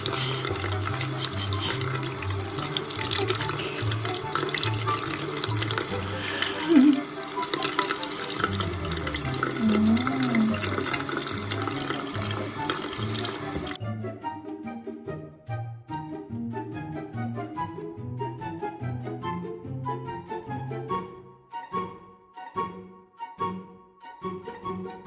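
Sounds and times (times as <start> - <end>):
running water: 0.0 - 13.8.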